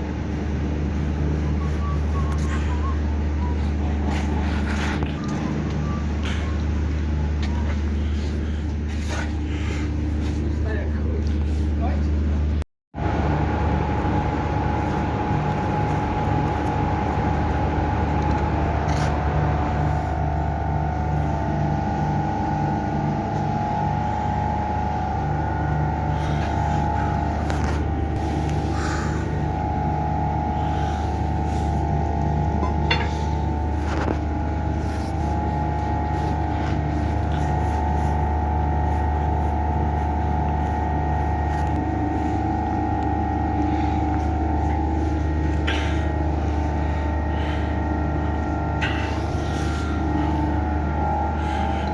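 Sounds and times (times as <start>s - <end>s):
motor humming: 0.0s - 51.9s
steady high tone: 13.2s - 51.9s.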